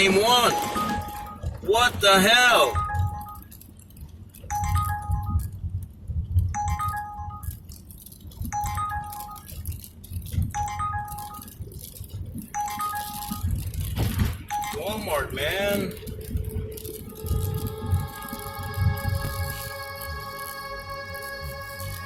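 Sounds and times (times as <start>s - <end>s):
app alert chiming: 0.0s - 1.5s, 2.6s - 3.4s, 6.6s - 7.5s, 12.6s - 13.6s, 14.5s - 15.9s
low car rumble: 13.4s - 22.0s.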